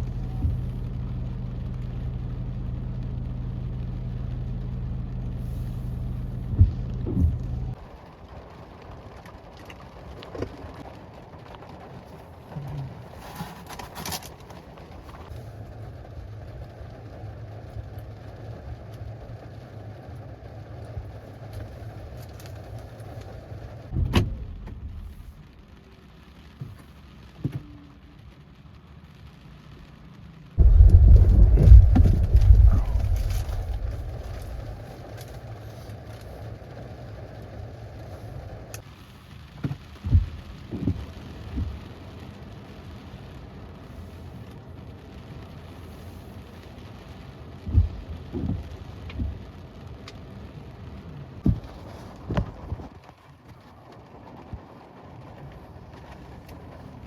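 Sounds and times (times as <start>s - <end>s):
car engine idling: 0.0s - 9.0s, 10.9s - 26.2s, 30.6s - 39.1s
low thunder rumble: 0.0s - 9.2s, 22.8s - 26.0s, 30.6s - 35.8s
low thumps: 6.4s - 7.8s, 23.9s - 25.6s, 30.6s - 35.0s
even rushing noise: 23.9s - 25.7s, 30.6s - 35.2s.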